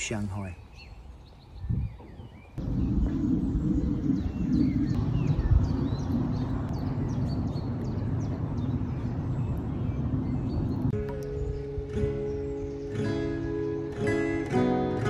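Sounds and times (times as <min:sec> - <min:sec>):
small birds chirping: 0:00.0 - 0:14.5
steady low rumble: 0:02.6 - 0:11.5.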